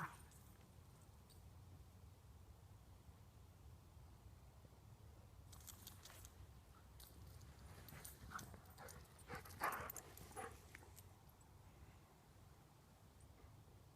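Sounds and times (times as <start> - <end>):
dog making faint clicks and scratches: 5.6 - 11.1.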